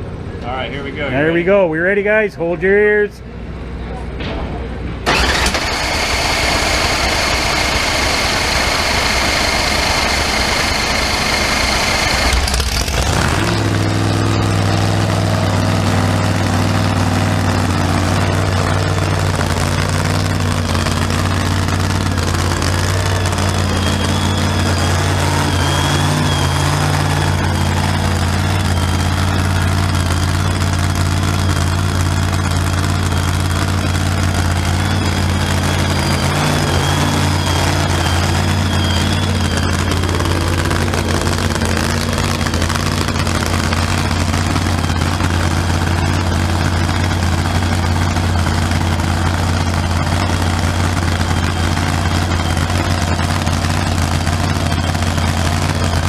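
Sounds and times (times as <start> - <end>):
loud engine idling: 0.0 - 56.0
faint high whine: 22.0 - 30.6, 33.3 - 44.6.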